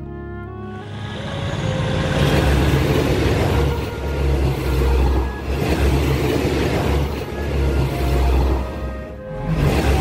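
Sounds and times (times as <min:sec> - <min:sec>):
train rumbling along rails: 0:00.7 - 0:10.0.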